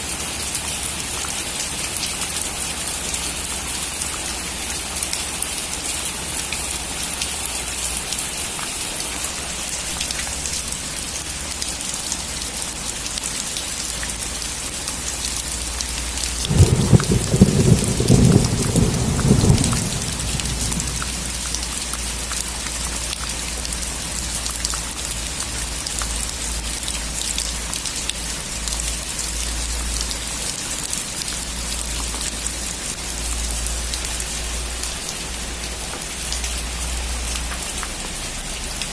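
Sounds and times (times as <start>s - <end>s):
steady rain: 0.0s - 38.9s
thunderclap: 16.4s - 21.6s.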